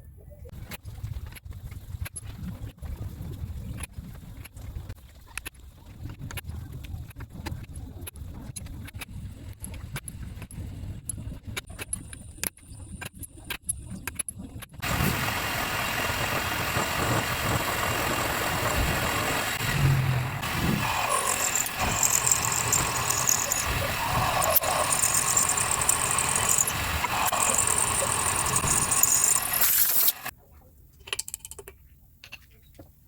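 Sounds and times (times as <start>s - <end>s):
loud power tool running: 14.8s - 30.3s.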